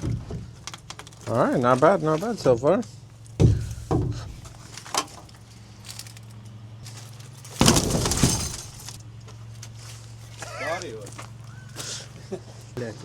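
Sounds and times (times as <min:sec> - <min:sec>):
low steady hum: 0:03.0 - 0:09.4
wooden crate cracking: 0:07.5 - 0:09.0
crash and clatter: 0:07.6 - 0:09.0.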